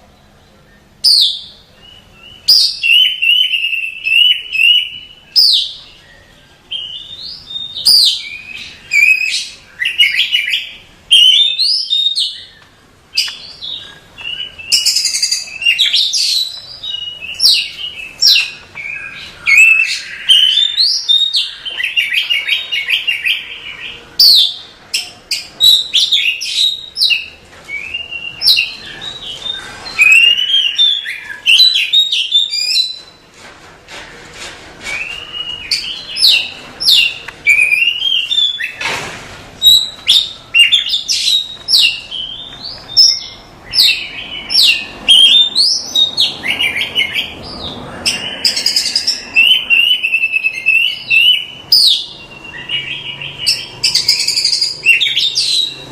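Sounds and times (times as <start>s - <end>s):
songbird whistling song: 0.0s - 33.2s, 34.8s - 38.8s, 39.6s - 55.9s.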